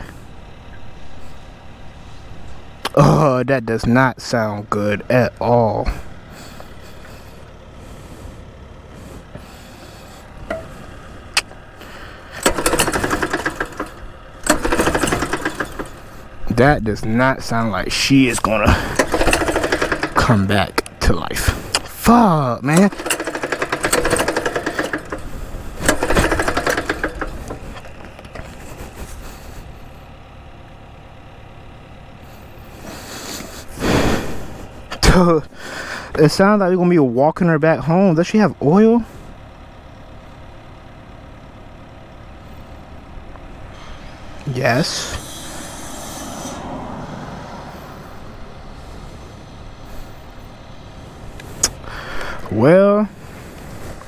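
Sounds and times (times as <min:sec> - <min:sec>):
road vehicle noise: 0:00.0 - 0:54.0
small engine cranking: 0:05.9 - 0:30.2, 0:32.2 - 0:36.3, 0:43.7 - 0:50.3, 0:51.3 - 0:54.0.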